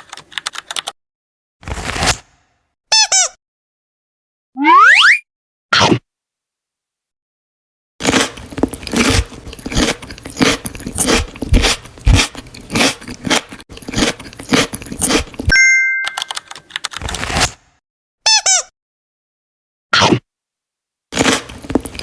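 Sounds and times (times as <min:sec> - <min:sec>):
crunchy chewing of food: 0:08.0 - 0:15.5, 0:21.1 - 0:22.0.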